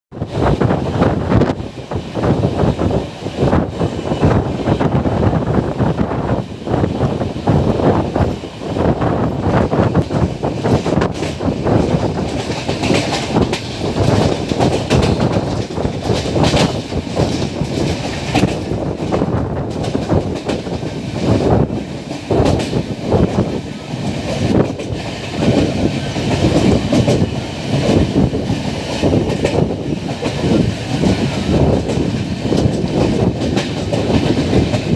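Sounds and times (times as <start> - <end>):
train coach rumbling on track: 0.1 - 34.9
wheels clacking over rail joints: 10.0 - 23.4, 24.0 - 34.9.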